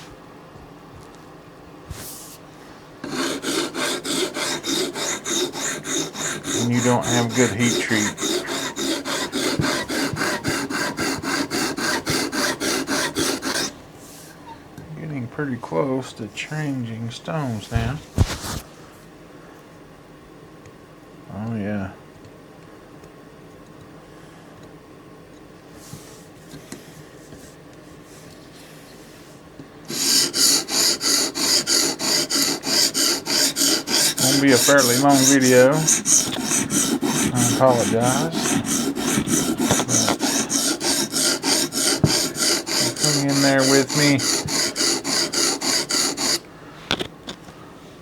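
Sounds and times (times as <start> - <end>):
sharpening stone rasping on blade: 3.1 - 13.7, 29.9 - 46.4.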